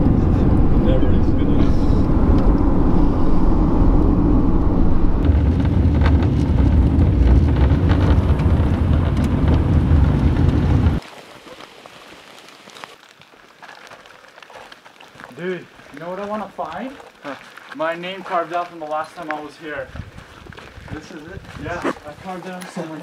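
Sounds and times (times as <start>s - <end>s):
car driving on wet road: 0.0s - 11.0s
rain: 0.0s - 23.0s.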